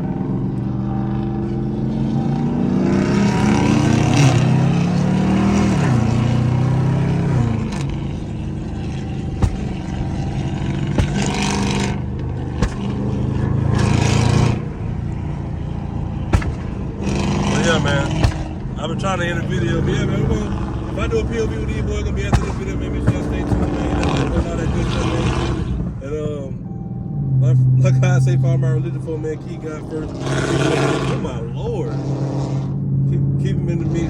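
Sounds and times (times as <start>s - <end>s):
car engine accelerating: 0.0s - 34.0s
exhaust cracks: 3.0s - 26.3s.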